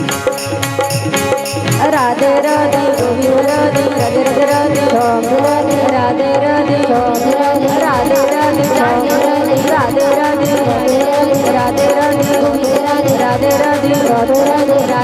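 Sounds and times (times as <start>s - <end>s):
sustained melody: 0.0s - 14.5s
drums beating: 0.0s - 15.0s
person singing long sliding notes: 1.8s - 15.0s.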